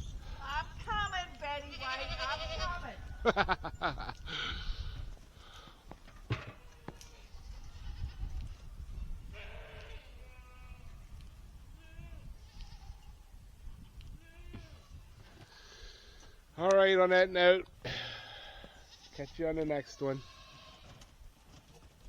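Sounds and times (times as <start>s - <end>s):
wind rumble on microphone: 0.0s - 5.3s, 7.2s - 15.5s
goats bleating: 1.6s - 3.0s, 9.4s - 10.8s, 17.9s - 21.0s.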